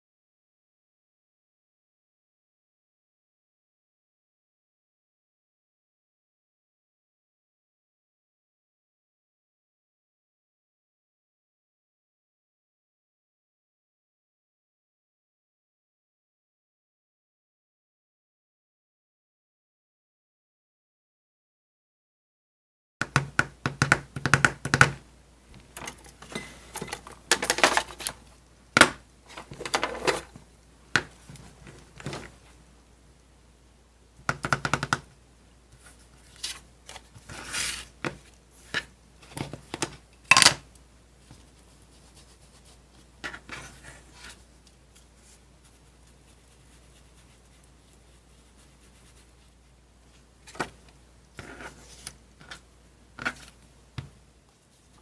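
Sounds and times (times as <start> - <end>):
craft tools tapping and clunking: 23.0 - 28.2
paper rustling: 25.5 - 32.6, 35.8 - 39.6.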